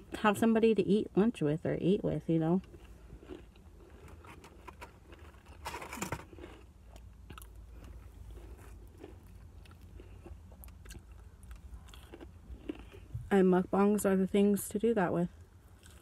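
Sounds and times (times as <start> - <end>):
person chewing crunchy food: 2.6 - 13.3, 15.6 - 16.0.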